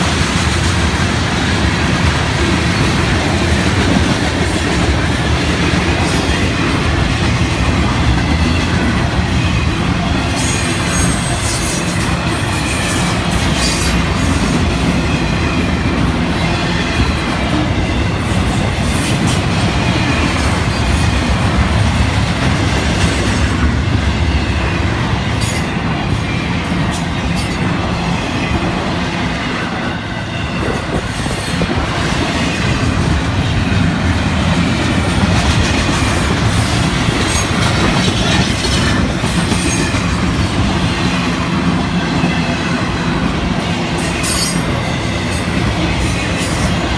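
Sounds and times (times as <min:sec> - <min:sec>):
freight train wheels rumbling: 0:00.0 - 0:46.9
wheels clacking over rail joints: 0:31.6 - 0:42.4.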